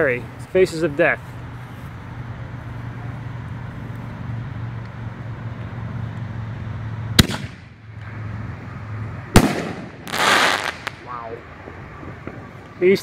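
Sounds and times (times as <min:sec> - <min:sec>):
firework shell bang: 0:09.4 - 0:11.1.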